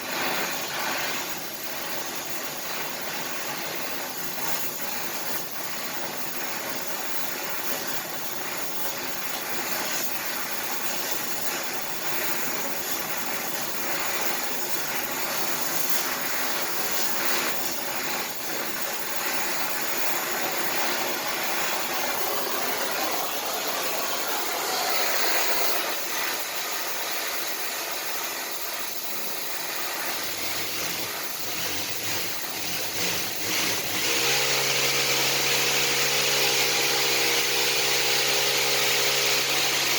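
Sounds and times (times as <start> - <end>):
arc welding crackling hiss: 0.0 - 39.9.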